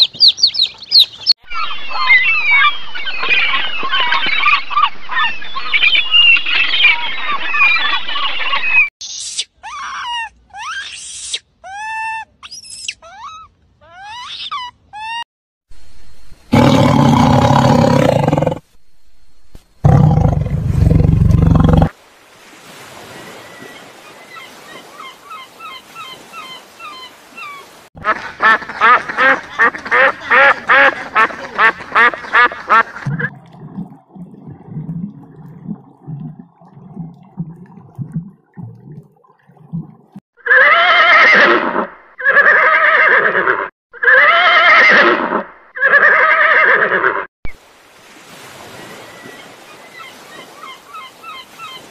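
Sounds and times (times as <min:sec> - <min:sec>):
faint bird chirping: 0:00.0 - 0:04.1
horse whinnying: 0:40.4 - 0:47.3.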